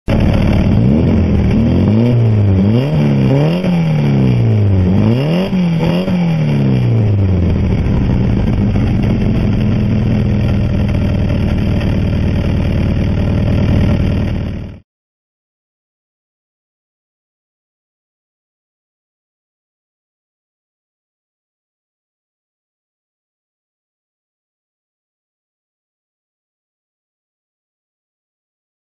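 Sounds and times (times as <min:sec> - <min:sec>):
car engine revving and idling: 0:00.1 - 0:14.8.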